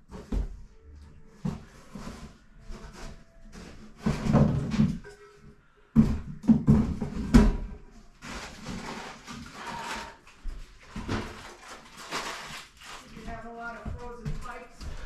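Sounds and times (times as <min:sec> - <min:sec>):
scraping and rustling: 0:01.2 - 0:05.4, 0:06.8 - 0:13.9.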